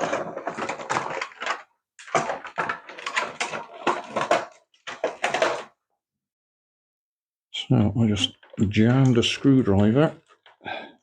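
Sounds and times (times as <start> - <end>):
hard plastic scraping and clattering: 0.0 - 5.8.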